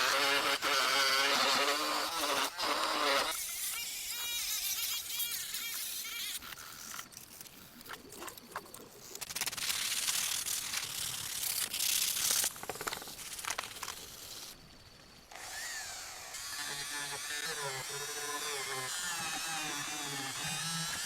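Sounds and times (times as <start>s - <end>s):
steady hiss: 4.8s - 21.0s.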